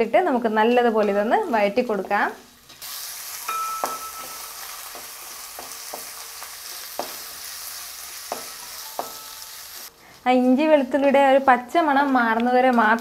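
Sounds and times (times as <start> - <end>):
food sizzling in oil: 1.3 - 10.0
spatula knocking against pan: 3.5 - 6.1, 6.9 - 7.2, 8.3 - 9.3.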